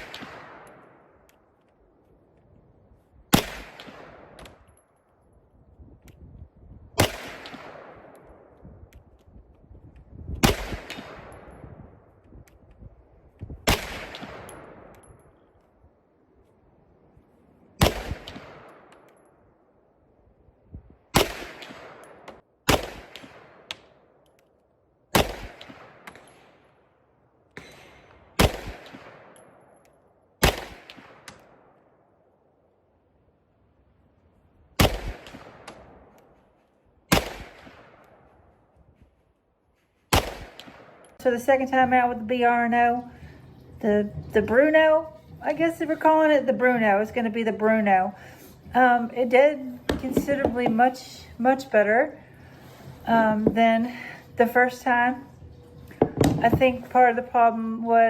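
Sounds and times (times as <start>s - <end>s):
pistol shots with echo: 0.0s - 1.2s, 3.3s - 4.8s, 7.0s - 8.5s, 10.4s - 11.6s, 13.6s - 15.1s, 17.8s - 19.1s, 21.1s - 24.0s, 25.1s - 26.8s, 27.5s - 29.7s, 30.4s - 31.8s, 34.8s - 36.2s, 37.1s - 38.3s, 40.1s - 41.2s.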